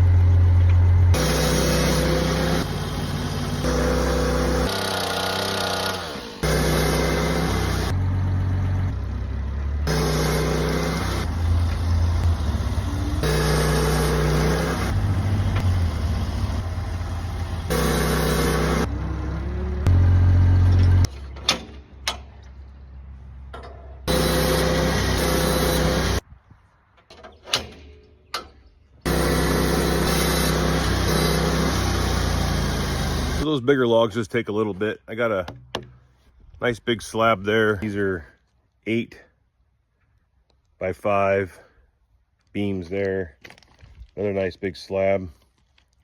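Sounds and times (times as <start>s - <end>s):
sawmill engine sawing log: 0.0s - 21.1s, 24.1s - 26.2s, 29.0s - 33.5s
sharp knocks: 35.5s - 36.0s.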